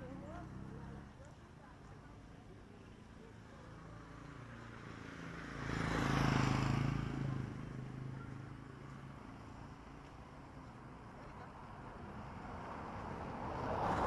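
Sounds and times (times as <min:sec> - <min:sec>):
motor vehicle passing: 0:04.1 - 0:09.8, 0:11.4 - 0:14.0.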